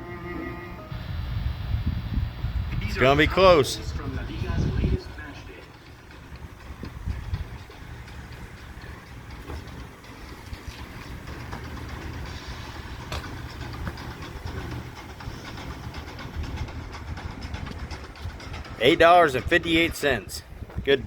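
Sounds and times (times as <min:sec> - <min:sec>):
fuel pump humming: 0:00.0 - 0:21.0
fuel pump click: 0:05.8 - 0:18.8
fuel rushing hiss: 0:10.1 - 0:16.6.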